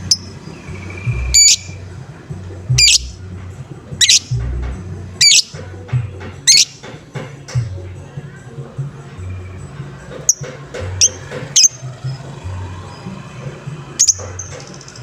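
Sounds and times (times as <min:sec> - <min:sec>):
bird squawking: 0:00.0 - 0:01.9, 0:02.7 - 0:03.2, 0:04.0 - 0:04.6, 0:05.2 - 0:05.6, 0:06.5 - 0:06.9, 0:10.3 - 0:13.1, 0:14.0 - 0:14.9
music with low beat: 0:00.0 - 0:15.0.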